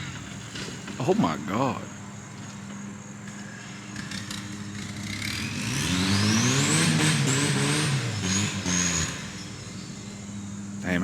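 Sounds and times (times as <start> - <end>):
car engine revving: 4.0 - 10.4.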